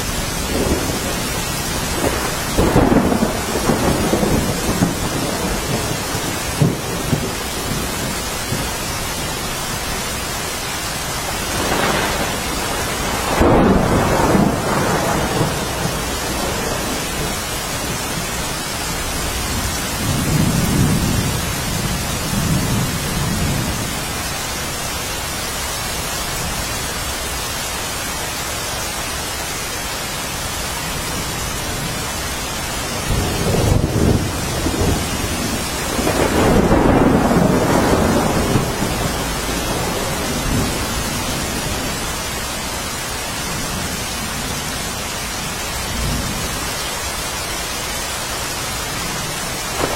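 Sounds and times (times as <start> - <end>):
thunder rolling: 0.0 - 9.5, 11.0 - 24.1, 32.8 - 42.9, 49.4 - 49.9
steady rain hissing: 0.0 - 49.9.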